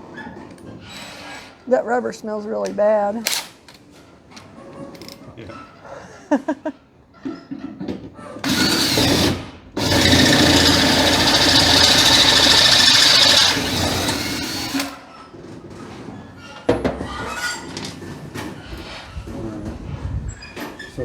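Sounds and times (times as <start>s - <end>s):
power drill running: 8.4s - 15.0s.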